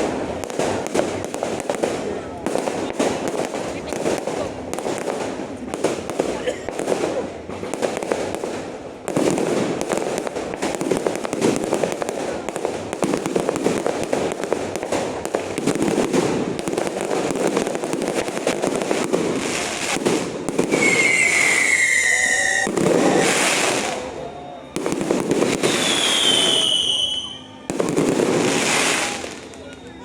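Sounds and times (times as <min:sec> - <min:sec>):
fireworks crackling bangs: 0:00.0 - 0:30.0
high falling whistle: 0:20.7 - 0:24.6.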